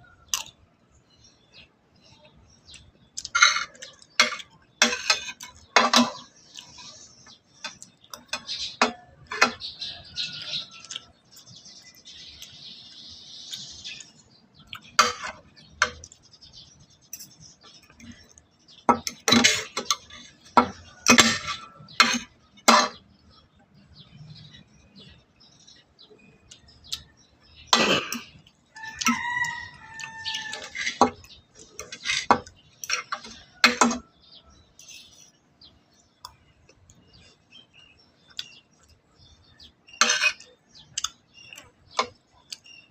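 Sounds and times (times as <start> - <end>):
utensils clinking against dishes: 3.2 - 7.0, 14.8 - 16.2, 18.9 - 23.0, 30.0 - 34.1, 40.0 - 42.2
rooster crowing: 28.8 - 30.8.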